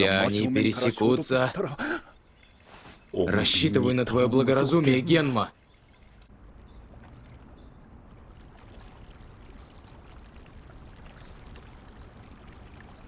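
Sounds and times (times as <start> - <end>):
running water: 3.6 - 13.0
light water splashing: 4.9 - 13.0.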